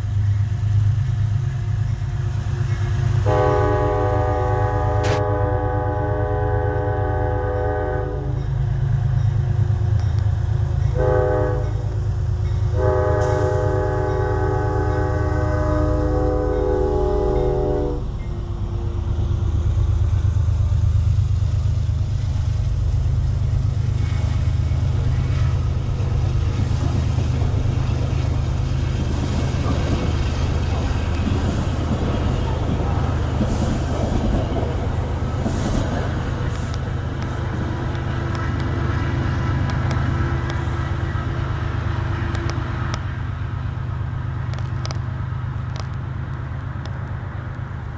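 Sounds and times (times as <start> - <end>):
train wheels on rails: 0.0 - 47.9
locomotive horn blasts: 3.2 - 8.4, 10.9 - 12.0, 12.7 - 18.3
diesel engine rumble: 15.4 - 47.9.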